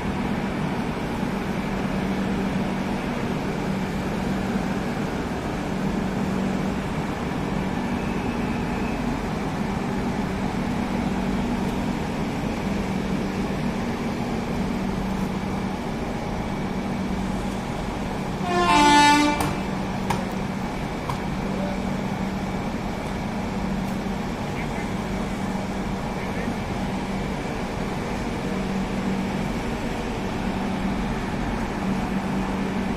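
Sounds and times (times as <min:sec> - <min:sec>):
train horn blast: 0:18.4 - 0:19.8.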